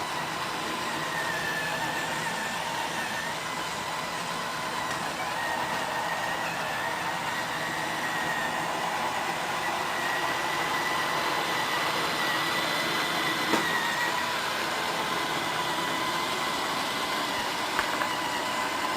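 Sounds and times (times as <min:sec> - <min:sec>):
robot vacuum whirring: 0:00.0 - 0:18.9.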